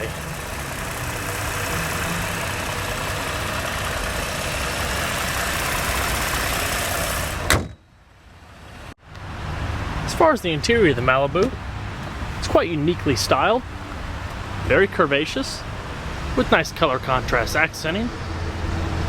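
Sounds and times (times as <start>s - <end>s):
car engine idling: 0.0s - 7.5s
sharp thump: 7.4s - 7.9s.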